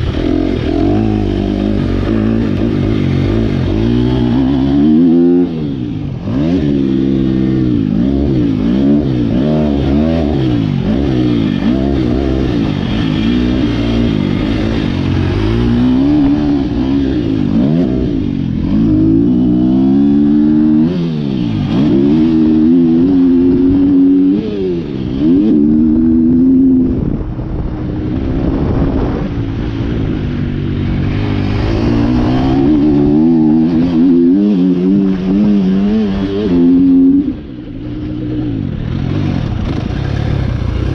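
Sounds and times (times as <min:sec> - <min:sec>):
motorcycle engine revving hard: 0:00.0 - 0:40.9.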